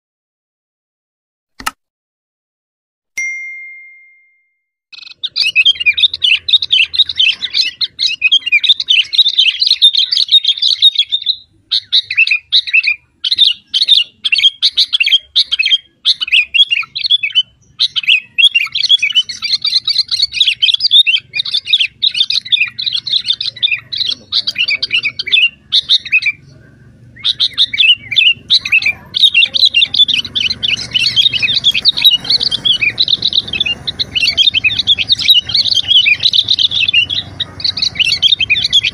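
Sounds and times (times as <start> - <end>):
ringing ding: 3.2 - 4.6
bird twittering: 5.0 - 38.9.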